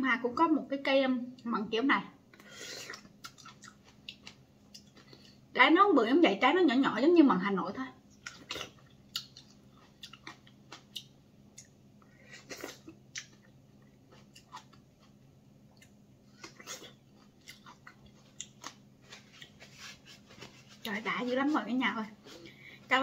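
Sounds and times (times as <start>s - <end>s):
person chewing with wet mouth clicks: 2.4s - 5.4s, 8.1s - 11.8s, 12.6s - 19.6s.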